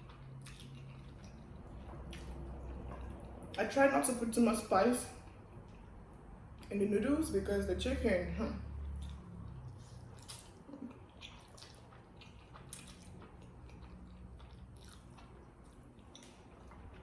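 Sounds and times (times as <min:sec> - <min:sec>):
person chewing noodles: 0:00.0 - 0:03.6, 0:08.8 - 0:17.0.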